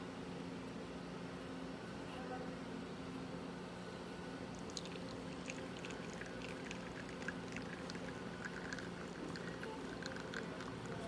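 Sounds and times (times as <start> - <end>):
steady low hum: 0.0 - 11.0
espresso dripping into a cup: 4.5 - 11.0.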